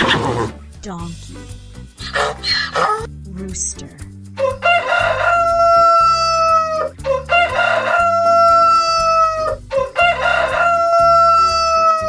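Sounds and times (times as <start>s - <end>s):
rooster crowing: 4.4s - 12.0s.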